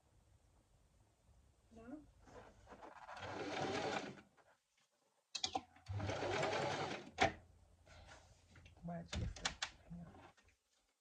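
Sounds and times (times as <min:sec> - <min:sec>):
sewing machine stitching: 0:02.9 - 0:04.2, 0:05.4 - 0:07.4.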